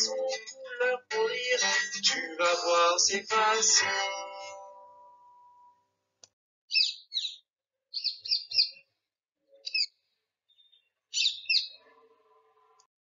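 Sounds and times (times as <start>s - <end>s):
bird chirps: 6.7s - 12.1s.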